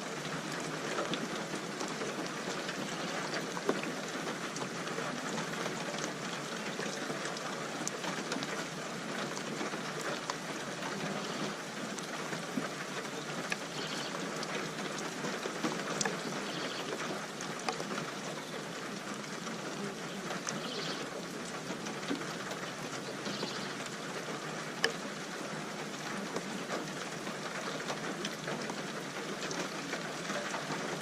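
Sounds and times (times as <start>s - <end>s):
raindrops ticking on surface: 0.0s - 31.0s
steady rain: 0.0s - 31.0s.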